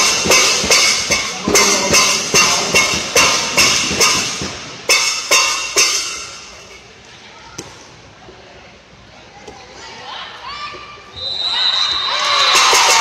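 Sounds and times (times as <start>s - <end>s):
rhythmic percussion hits: 0.0s - 6.8s, 12.3s - 13.0s.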